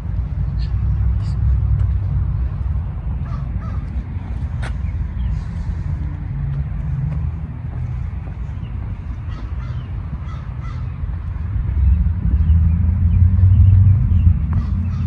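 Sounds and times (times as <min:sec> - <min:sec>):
steady low rumble: 0:00.0 - 0:15.0
crows cawing faintly: 0:03.2 - 0:05.9, 0:09.1 - 0:11.0.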